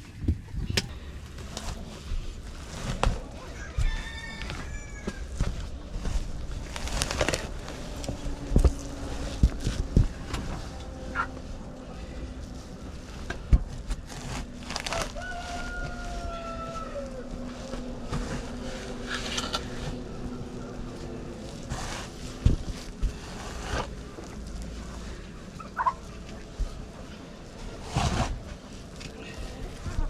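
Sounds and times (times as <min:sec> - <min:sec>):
knocks and clatter of farm work: 0:00.0 - 0:26.8
chickens calling: 0:25.6 - 0:26.2.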